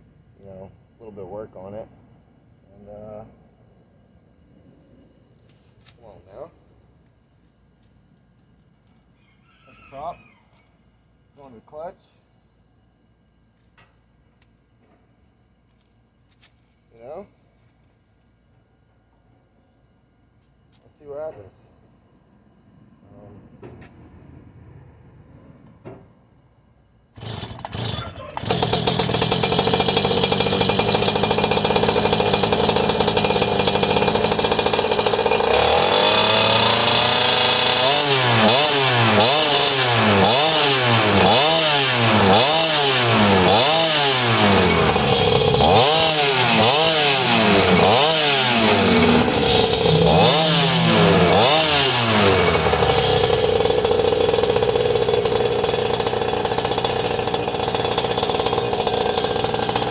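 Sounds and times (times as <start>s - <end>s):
small two-stroke engine revving: 27.2s - 59.9s.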